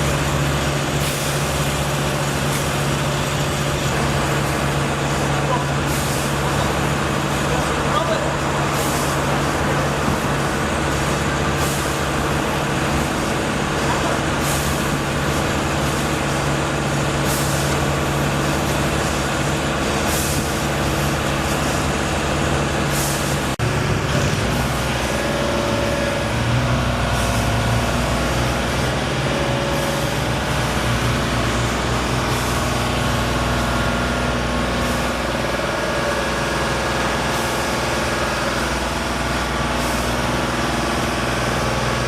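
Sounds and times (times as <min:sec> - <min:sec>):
heavy engine running: 0:00.0 - 0:42.0.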